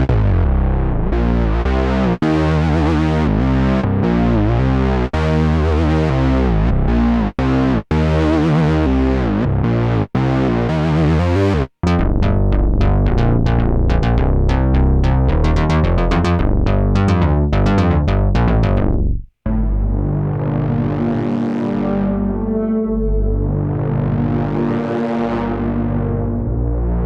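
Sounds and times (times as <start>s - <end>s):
short plucked synthesizer notes: 11.8s - 27.0s
synthesizer held chord: 19.5s - 27.0s.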